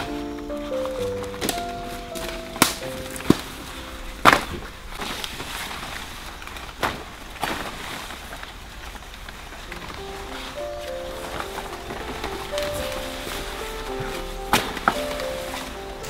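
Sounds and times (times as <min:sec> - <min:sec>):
background music: 0:00.0 - 0:05.3, 0:09.7 - 0:16.0
faint rustling: 0:00.0 - 0:16.0.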